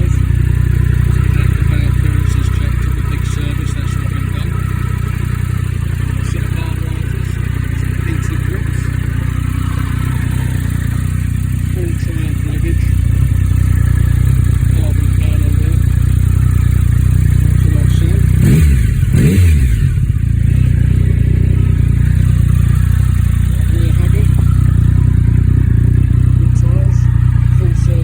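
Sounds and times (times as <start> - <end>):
throttle blips: 0.0 - 18.6
motorcycle engine idling: 0.0 - 28.0.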